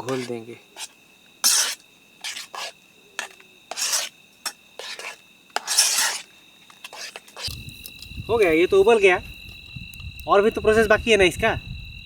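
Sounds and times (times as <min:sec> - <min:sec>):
spoon scraping a dish: 0:00.0 - 0:07.6
crickets chirring: 0:00.0 - 0:12.0.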